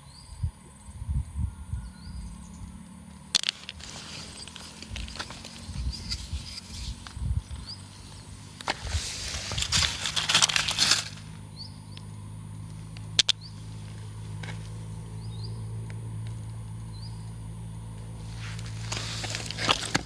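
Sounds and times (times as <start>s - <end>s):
low steady hum: 0.0s - 20.0s
crunching on gravel: 3.0s - 15.0s, 18.0s - 20.0s.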